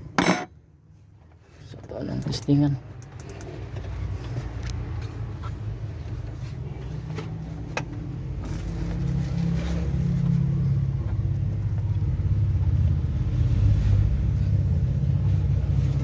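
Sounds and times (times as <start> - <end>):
diesel engine running: 3.8 - 16.0.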